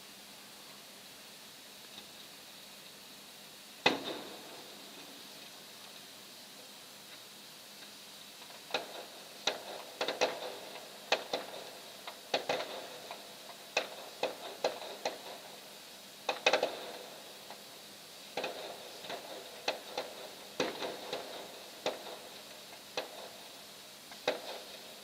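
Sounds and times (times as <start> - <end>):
distant fireworks pops: 3.8 - 5.1, 7.8 - 15.6, 16.2 - 17.7, 18.3 - 25.0.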